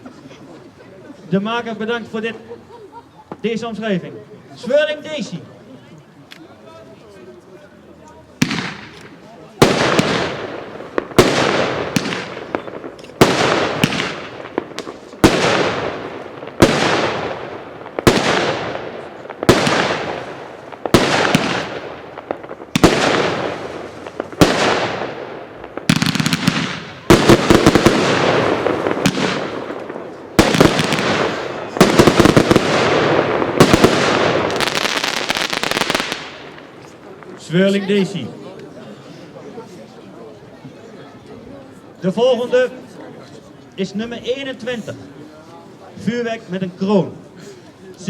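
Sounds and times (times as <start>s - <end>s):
fireworks bangs with hiss: 8.3s - 37.6s.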